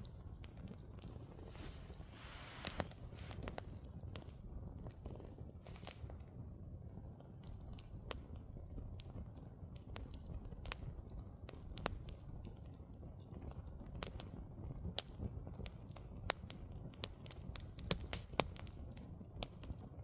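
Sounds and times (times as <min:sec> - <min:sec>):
low rumble of flames: 0:00.0 - 0:20.0
wood crackling and popping: 0:00.0 - 0:20.0.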